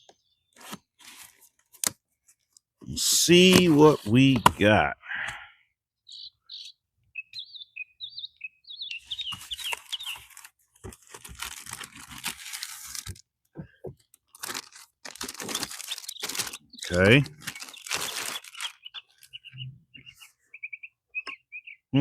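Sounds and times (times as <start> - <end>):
bird chirps: 0.0 - 0.6, 6.0 - 10.5, 15.2 - 22.0
packaging crinkling and tearing: 9.4 - 13.2, 14.2 - 19.4.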